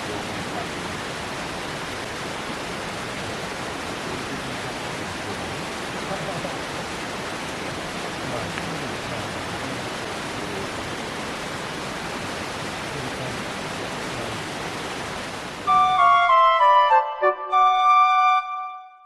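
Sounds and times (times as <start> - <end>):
stream water rushing: 0.0 - 17.1
flute-like background music: 15.7 - 19.0.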